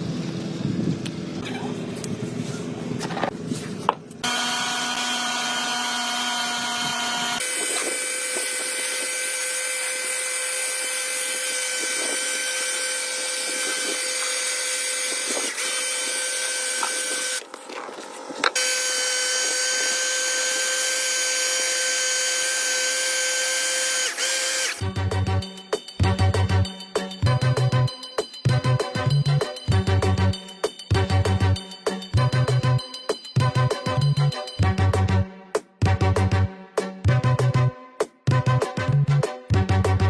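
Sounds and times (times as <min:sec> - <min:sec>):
power tool whining: 0:04.2 - 0:25.0.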